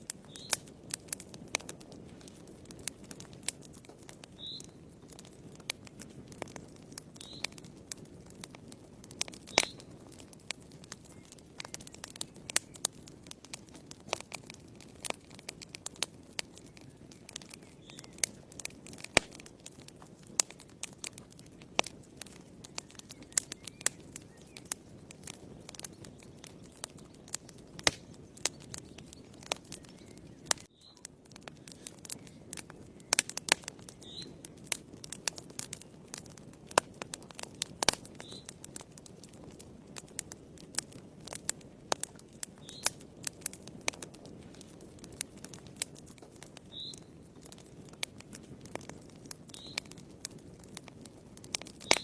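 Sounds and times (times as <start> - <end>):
wood fire crackling and popping: 0.0 - 52.0.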